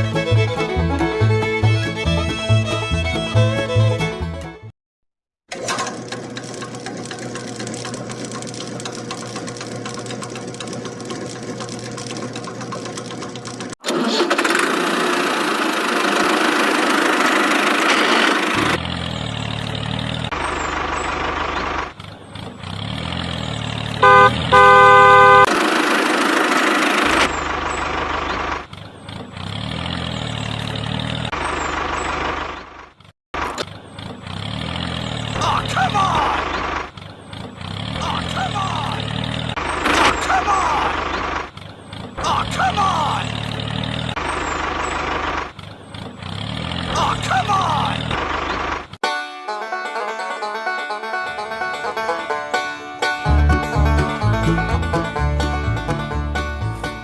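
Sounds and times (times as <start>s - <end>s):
small motor running: 6.0s - 32.6s
short horn beeps: 24.0s - 25.5s.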